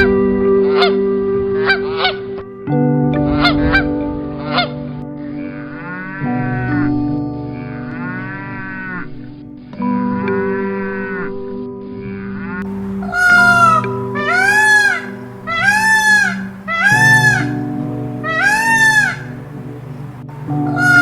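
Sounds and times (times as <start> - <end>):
higher-pitched animal call: 12.7 - 19.6, 20.6 - 21.0
cattle mooing: 12.7 - 19.9.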